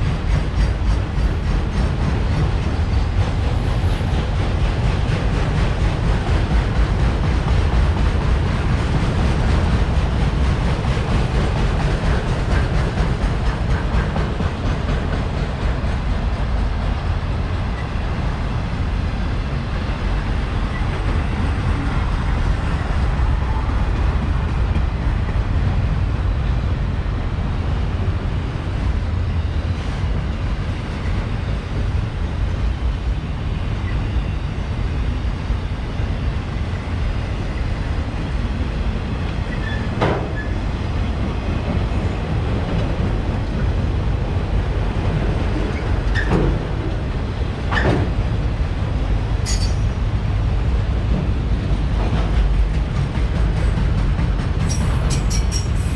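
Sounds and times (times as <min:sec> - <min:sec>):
train wheels rumbling on rails: 0:00.0 - 0:55.9.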